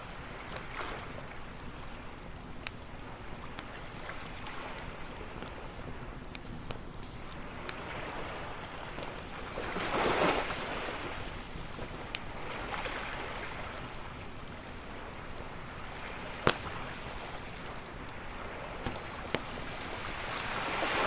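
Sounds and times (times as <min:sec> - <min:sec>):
campfire pops and crackles: 0:00.0 - 0:21.0
ocean waves washing ashore: 0:07.2 - 0:14.3, 0:14.9 - 0:21.0.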